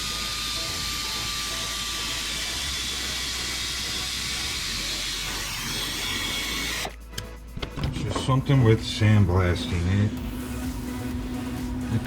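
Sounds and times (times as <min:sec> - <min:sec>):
power wire wheel scrubbing metal: 0:00.0 - 0:06.9.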